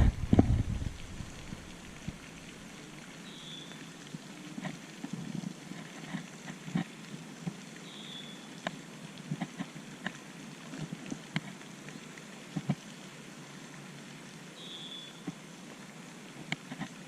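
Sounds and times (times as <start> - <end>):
light rain falling: 0.0 - 17.0
small ticks: 16.5 - 17.0.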